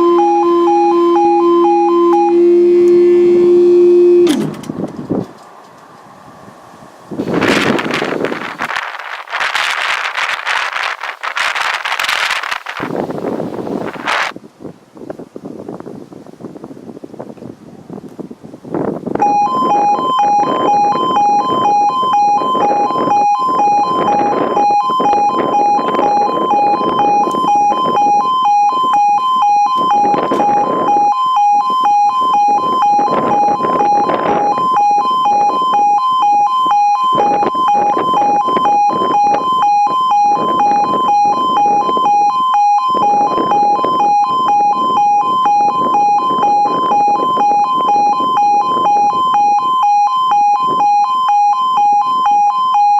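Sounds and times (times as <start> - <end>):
two-tone electronic alarm pulsing: 0.0 - 4.4, 7.2 - 14.3, 19.2 - 52.9
rushing noise: 3.3 - 14.4.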